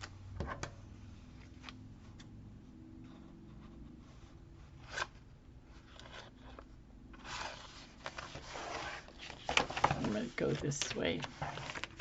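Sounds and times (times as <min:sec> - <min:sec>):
low steady hum: 0:00.0 - 0:12.0
paper rustling: 0:04.8 - 0:12.0.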